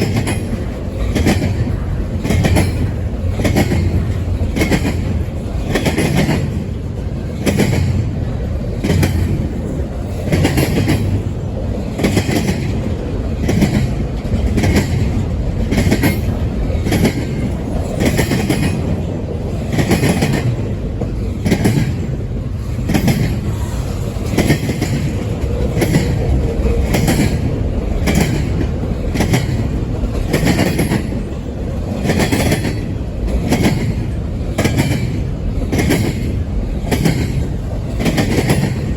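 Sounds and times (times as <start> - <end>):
train rumble: 0.0 - 38.9
train wheels clicking over rail joints: 0.0 - 38.9.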